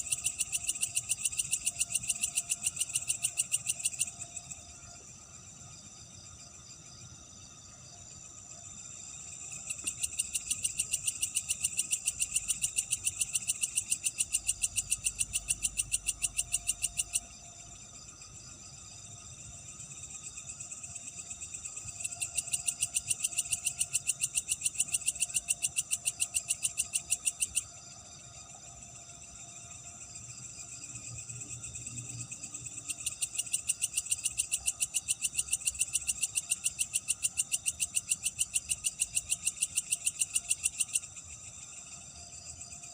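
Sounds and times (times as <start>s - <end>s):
insects chirping: 0.0s - 42.9s
frogs calling: 9.8s - 17.3s.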